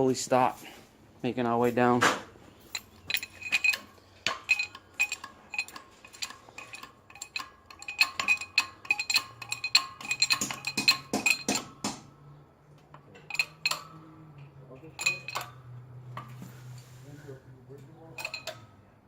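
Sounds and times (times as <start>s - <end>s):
metallic clinks from press: 2.6s - 16.4s, 18.0s - 18.8s.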